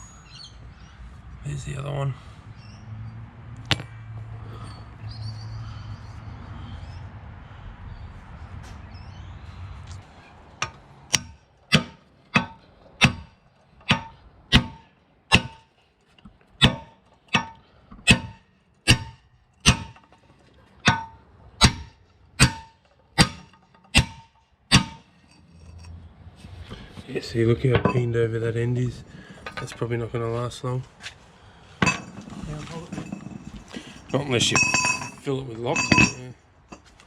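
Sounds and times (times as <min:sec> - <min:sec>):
hammer striking steel: 0:10.6 - 0:15.7, 0:16.6 - 0:20.2, 0:20.8 - 0:25.8, 0:34.4 - 0:36.3.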